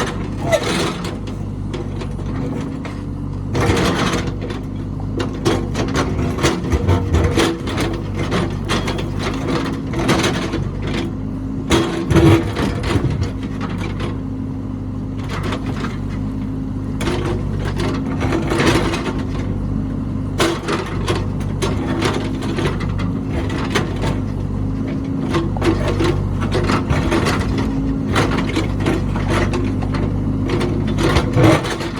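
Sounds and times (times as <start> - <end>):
metal clanking and scraping: 0.0 - 11.1, 11.7 - 14.2, 20.4 - 31.9
diesel engine running: 0.0 - 31.9.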